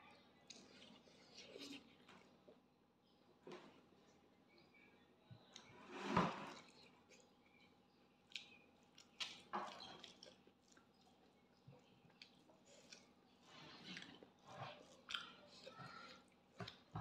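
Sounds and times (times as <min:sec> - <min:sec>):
person chewing food: 0:00.4 - 0:02.6, 0:06.5 - 0:17.0.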